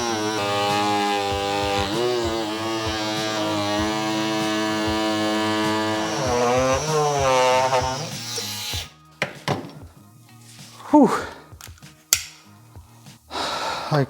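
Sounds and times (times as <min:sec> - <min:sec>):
oscillating multi-tool cutting: 0:00.0 - 0:09.0.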